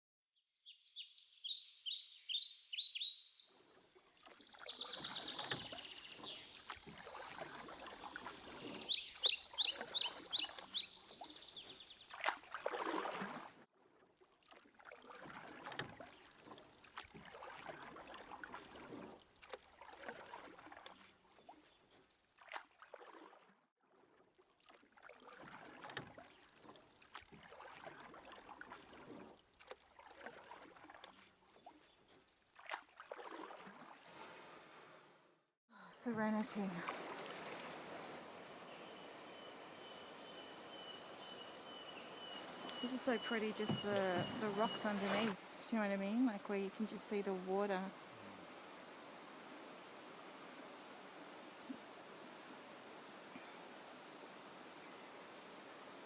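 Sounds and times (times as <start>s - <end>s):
canoe paddle strokes splashing: 2.0s - 35.4s, 36.5s - 56.0s
bird calling high notes: 38.6s - 48.1s.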